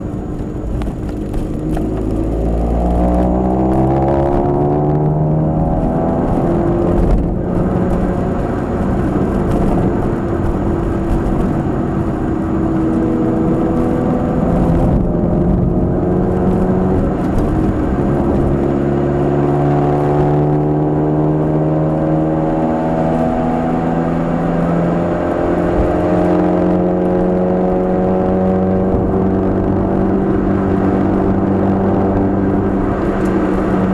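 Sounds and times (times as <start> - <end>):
car engine from inside while driving: 0.0 - 33.9.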